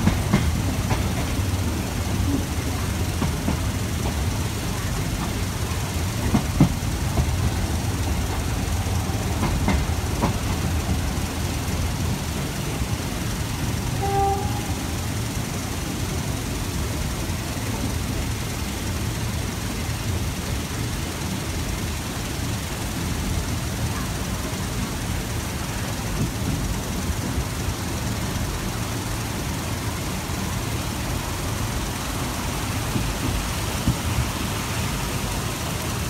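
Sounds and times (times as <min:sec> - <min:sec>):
train rumbling: 0:00.0 - 0:36.0
train wheels knocking: 0:00.0 - 0:36.0
short pitched tone: 0:14.0 - 0:14.8.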